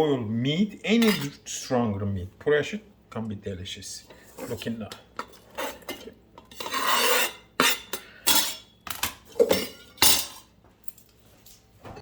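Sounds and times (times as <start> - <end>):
utensils and dishes clattering: 1.0 - 1.4, 4.3 - 11.2.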